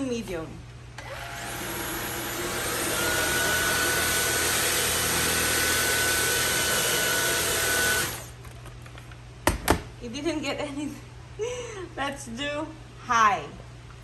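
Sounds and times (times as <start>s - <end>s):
vacuum cleaner running: 1.0s - 8.4s.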